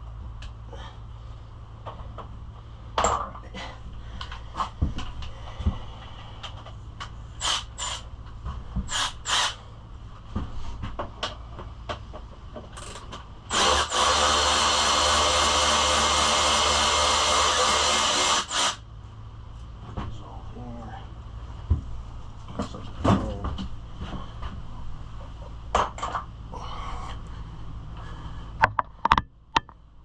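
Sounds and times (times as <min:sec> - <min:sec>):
power drill bursts: 0:07.4 - 0:08.0, 0:08.9 - 0:09.6, 0:13.5 - 0:18.8
loud steady motor running: 0:13.5 - 0:18.8
tool clicks and knocks: 0:28.6 - 0:29.8.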